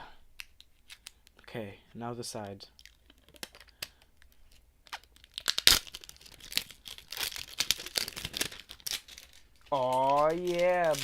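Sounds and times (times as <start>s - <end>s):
plastic wrap tearing and crinkling: 2.8s - 11.0s.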